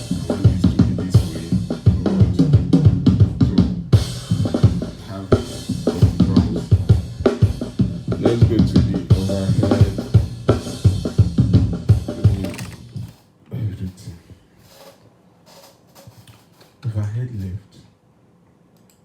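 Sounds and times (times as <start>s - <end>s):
drum kit groove: 0.0s - 13.3s.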